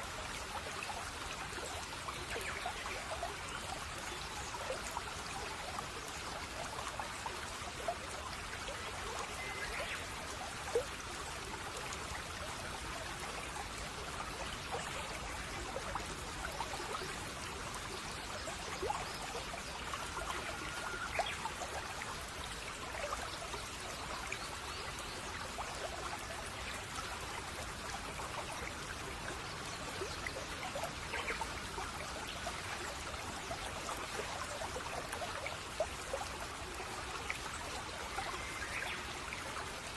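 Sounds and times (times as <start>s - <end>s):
stream babbling over stones: 0.0s - 39.9s
faint bird chirps: 9.2s - 10.1s, 18.9s - 21.6s.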